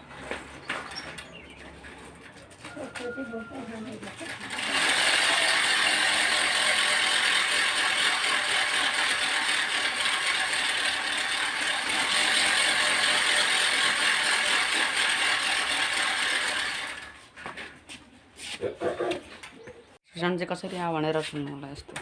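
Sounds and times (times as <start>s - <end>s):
strip rattling against wheel spokes: 4.1s - 17.2s.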